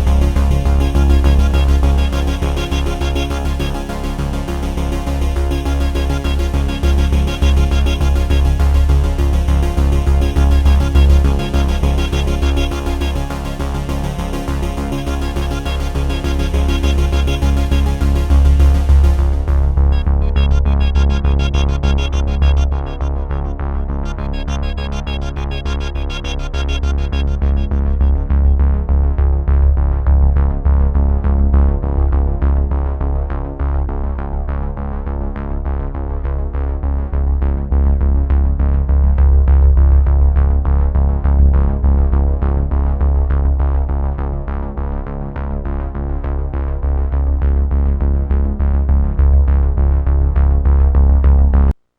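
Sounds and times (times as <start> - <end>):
synthesizer music with bass line: 0.0 - 30.6.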